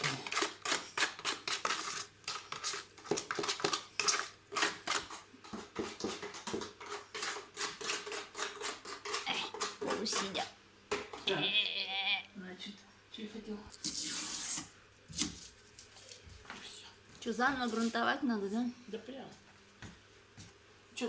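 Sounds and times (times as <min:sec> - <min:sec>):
tool scraping mortar mix: 0:00.0 - 0:10.5, 0:13.8 - 0:15.4.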